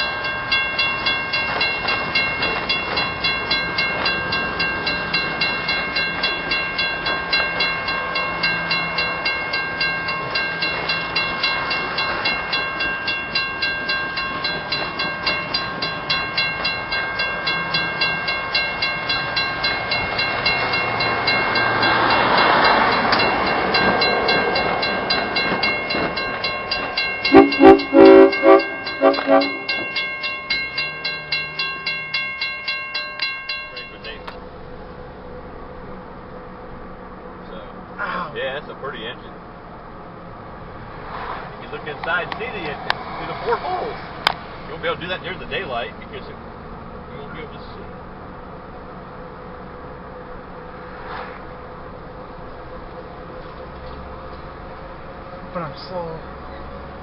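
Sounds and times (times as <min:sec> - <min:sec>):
locomotive bell ringing: 0:00.0 - 0:35.6, 0:41.7 - 0:50.6
train rushing past: 0:00.0 - 0:39.3, 0:40.2 - 0:46.4
train horn blasts: 0:27.2 - 0:30.0.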